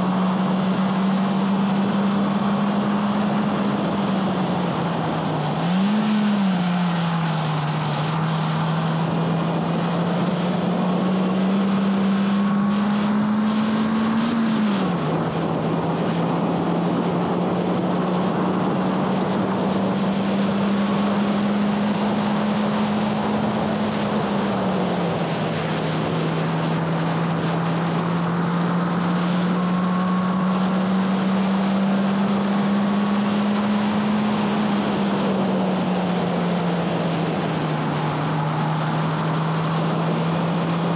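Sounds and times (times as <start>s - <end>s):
car engine at high revs: 0.0s - 40.9s
steady rushing noise: 0.0s - 40.9s.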